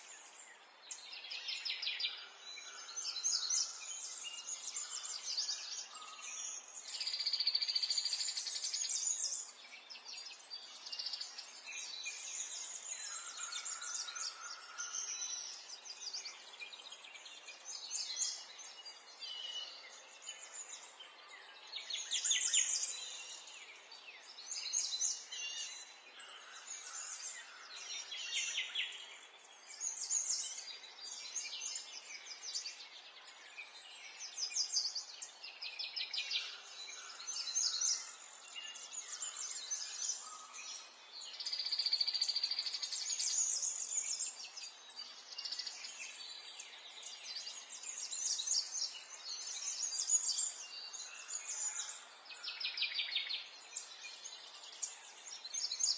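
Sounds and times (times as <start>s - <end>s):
songbirds singing and trilling: 0.0s - 55.9s.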